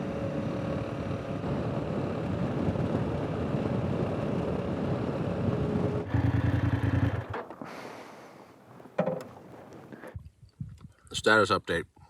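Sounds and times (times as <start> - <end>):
motorcycle engine running: 0.0 - 7.5
wind and road noise: 0.0 - 11.6.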